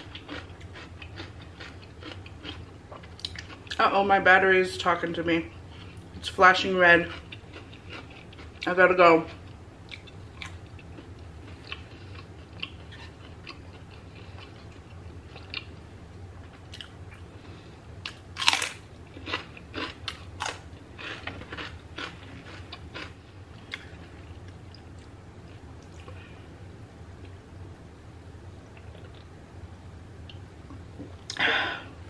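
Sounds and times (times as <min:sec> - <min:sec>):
crunchy chewing: 0:00.0 - 0:03.8, 0:07.1 - 0:08.7, 0:09.3 - 0:15.8, 0:16.4 - 0:26.2
soft chewing: 0:00.0 - 0:03.8, 0:07.0 - 0:15.8, 0:16.4 - 0:26.4.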